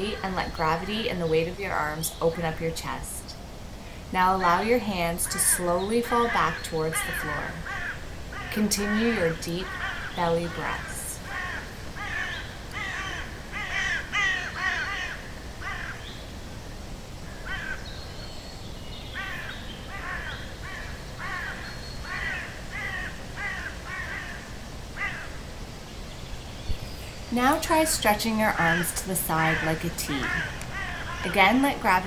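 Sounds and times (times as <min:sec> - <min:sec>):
bird calling repeatedly: 0:04.3 - 0:16.1, 0:26.7 - 0:32.0.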